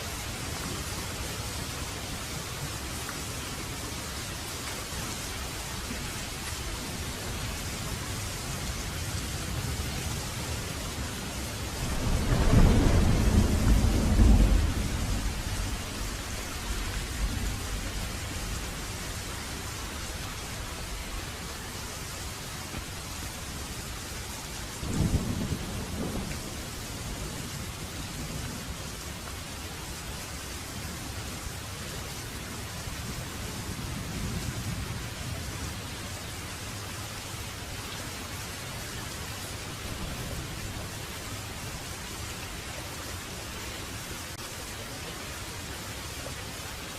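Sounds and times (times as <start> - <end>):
heavy rain falling: 0.0 - 46.9
rolling thunder rumble: 6.0 - 21.4, 24.7 - 28.8.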